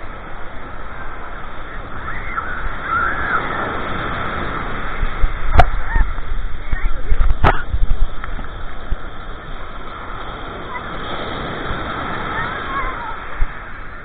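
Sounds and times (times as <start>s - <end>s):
steady noisy background: 0.0s - 14.0s
birds calling: 1.6s - 4.6s.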